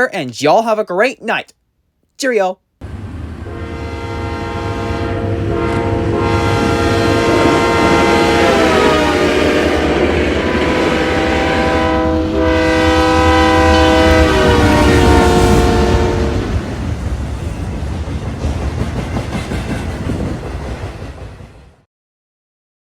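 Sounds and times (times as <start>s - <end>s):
train rumble and wheel clatter: 2.8s - 21.8s
locomotive air horn chord: 3.4s - 16.5s.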